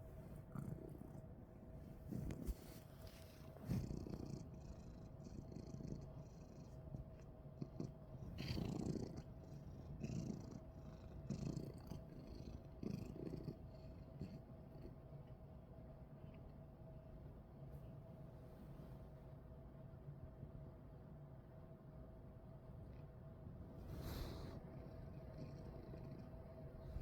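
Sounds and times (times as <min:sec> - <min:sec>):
cat purring: 0:00.0 - 0:15.4, 0:22.8 - 0:27.0.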